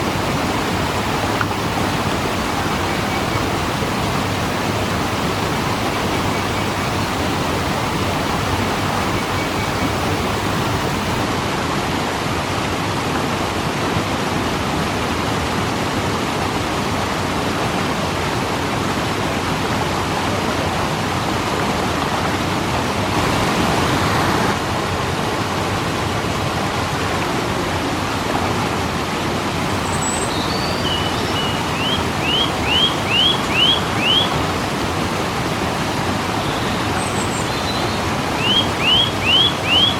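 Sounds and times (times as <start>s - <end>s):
bird chirping: 0.0s - 11.2s, 29.6s - 39.9s
waterfall rushing: 0.0s - 11.6s, 29.6s - 39.9s.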